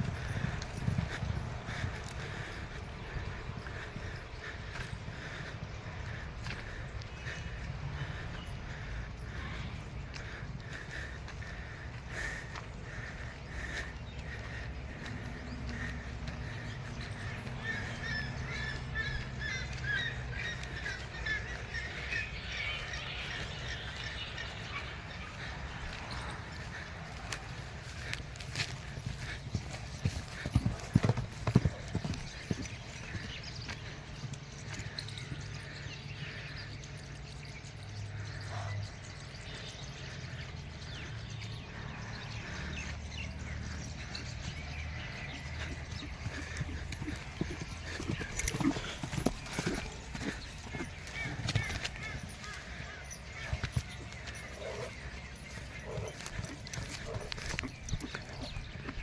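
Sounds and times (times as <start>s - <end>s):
birds chirping and squawking: 0.0s - 59.0s.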